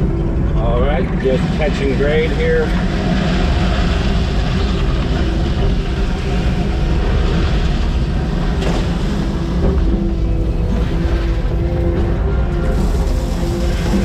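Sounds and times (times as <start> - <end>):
diesel engine of earthmover running: 2.7 - 14.0.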